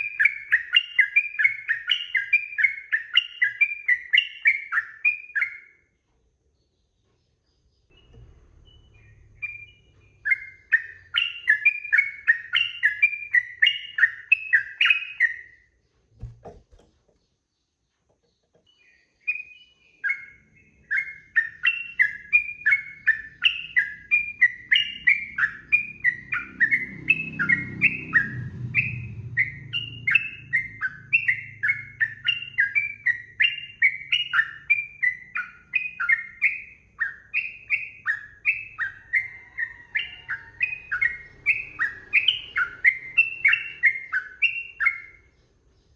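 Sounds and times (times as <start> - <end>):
bird singing chirping notes: 0.0 - 5.9, 7.3 - 15.6, 18.3 - 45.9
brief low thump: 16.2 - 17.2.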